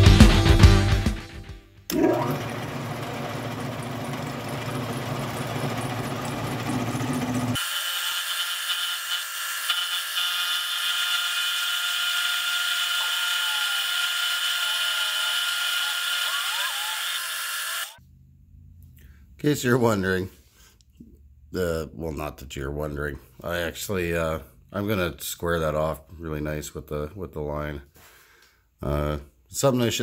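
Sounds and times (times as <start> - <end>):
milling cutter whining: 1.9 - 18.0.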